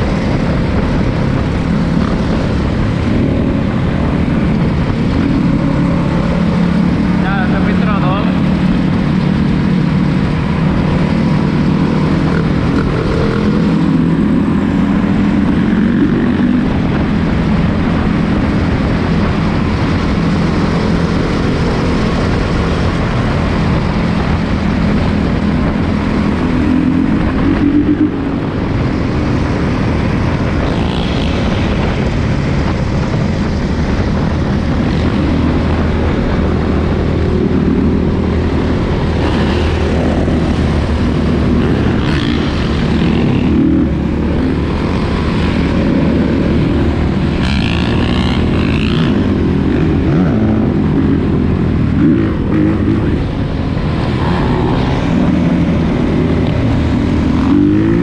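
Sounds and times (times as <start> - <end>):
dirt bike engine revving: 34.2 - 58.0.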